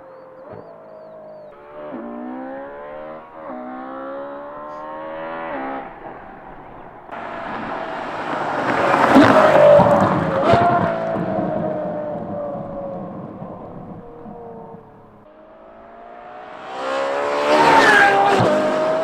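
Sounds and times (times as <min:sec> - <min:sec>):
sports car accelerating hard: 0:00.0 - 0:19.0
car passing by: 0:01.6 - 0:12.2, 0:15.3 - 0:19.0.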